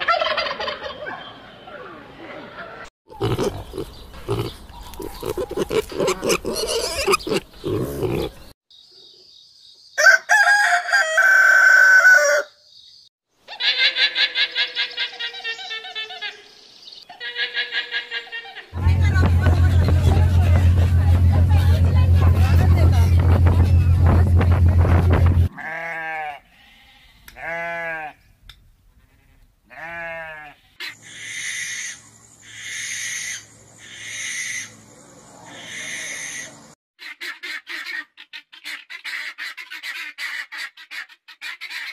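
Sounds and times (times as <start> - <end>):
rasping hissing animal calls: 3.1 - 8.5, 30.9 - 34.8, 35.5 - 36.7
rooster crowing: 10.0 - 12.6
low engine hum: 18.8 - 25.5
bleat-like animal cries: 25.5 - 28.2, 29.0 - 30.8.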